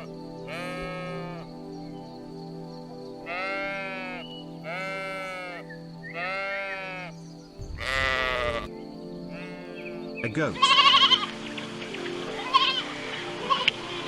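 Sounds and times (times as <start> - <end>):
soft background music: 0.0 - 14.0
sheep bleating: 3.3 - 5.6, 6.2 - 7.1, 7.8 - 8.7, 9.3 - 9.9, 10.5 - 11.3, 12.3 - 13.8.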